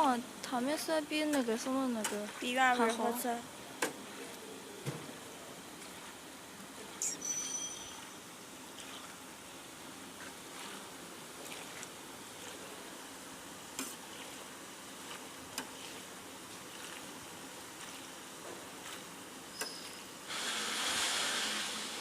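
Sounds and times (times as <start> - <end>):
food sizzling in hot oil: 20.0 - 22.0.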